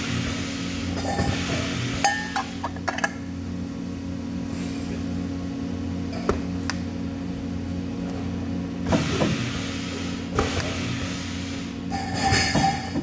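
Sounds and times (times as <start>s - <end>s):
machinery electrical hum: 0.0s - 13.0s.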